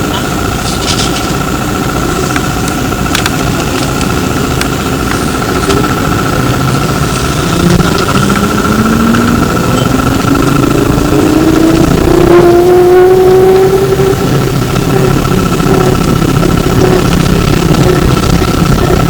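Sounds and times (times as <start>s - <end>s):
electric motor whine rising: 0.0s - 19.0s
road and body rumble: 0.0s - 19.0s
steady high-pitched tone: 0.0s - 19.0s.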